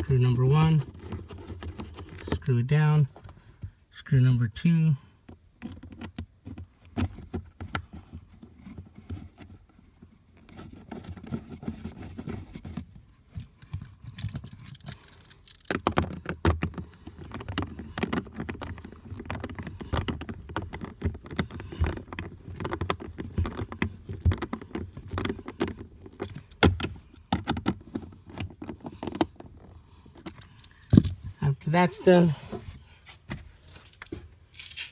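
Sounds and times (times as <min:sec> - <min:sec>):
socket wrench ratchet clicking: 0:26.2 - 0:27.3.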